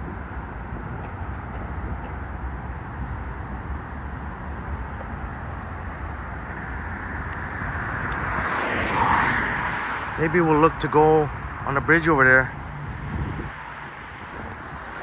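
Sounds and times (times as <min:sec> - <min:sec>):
road traffic rumble: 0:00.0 - 0:15.0
vehicle passing close: 0:06.6 - 0:15.0.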